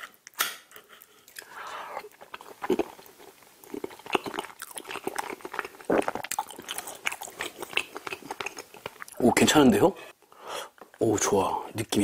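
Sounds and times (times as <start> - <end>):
person chewing food: 0.0 - 9.2.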